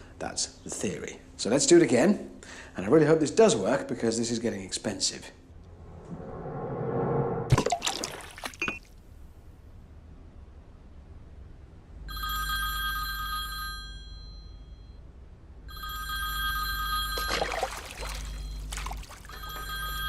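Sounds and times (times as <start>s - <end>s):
short noisy rush: 5.6s - 7.6s
mobile phone ringtone: 12.1s - 15.0s, 15.7s - 17.5s, 19.3s - 20.0s.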